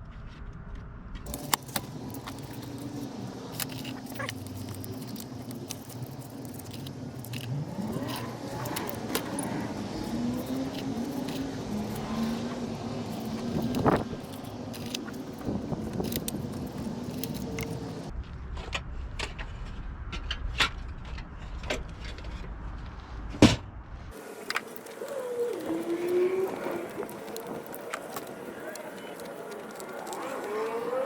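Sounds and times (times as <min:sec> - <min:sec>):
small metal tools clinking: 0:01.3 - 0:18.1, 0:24.2 - 0:31.0.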